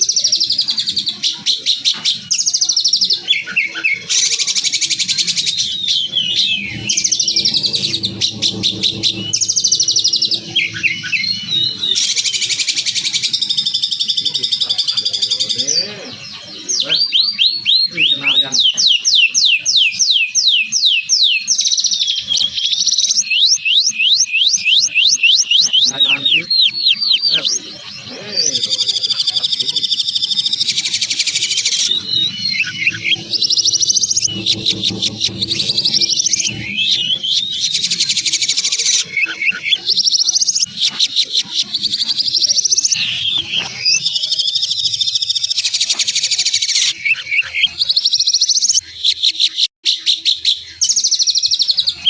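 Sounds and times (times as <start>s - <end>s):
songbird whistled chirps: 0.0s - 52.0s
dry buzzing trill: 4.6s - 14.4s, 26.3s - 38.7s
songbird rapid trills: 21.5s - 48.8s.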